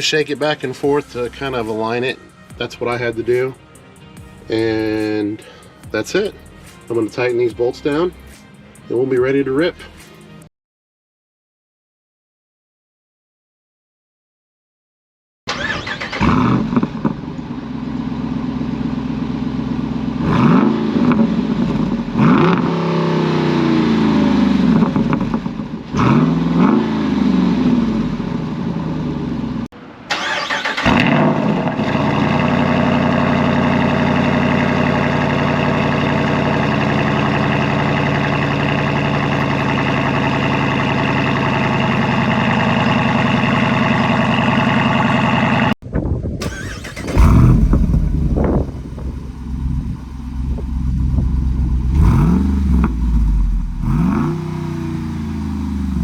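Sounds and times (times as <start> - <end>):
engine revving: 15.5 - 17.4, 18.0 - 45.8, 46.4 - 56.0
engine idling: 30.8 - 45.8, 46.4 - 56.0.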